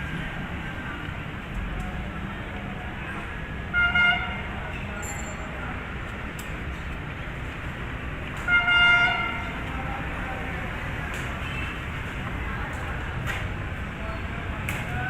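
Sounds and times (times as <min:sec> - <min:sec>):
horn blasts: 0:08.5 - 0:09.5.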